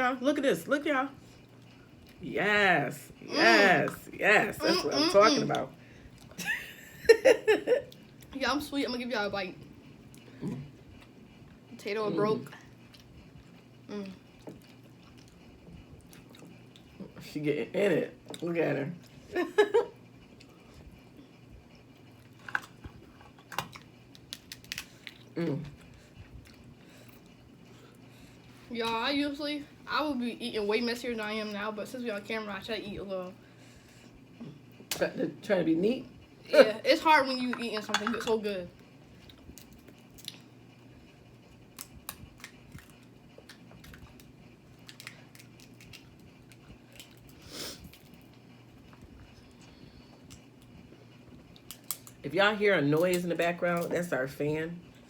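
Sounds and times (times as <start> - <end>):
room fan: 0.0 - 55.0
quiet chewing: 1.3 - 2.2, 12.4 - 17.2, 39.1 - 40.8, 41.5 - 52.2
crab shells cracking: 23.5 - 25.2, 41.8 - 46.2, 51.6 - 52.2.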